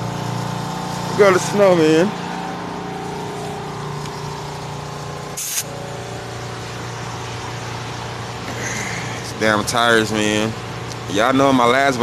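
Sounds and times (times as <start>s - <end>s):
air compressor drone: 0.0s - 12.0s
air hissing from tire valve: 5.4s - 5.8s.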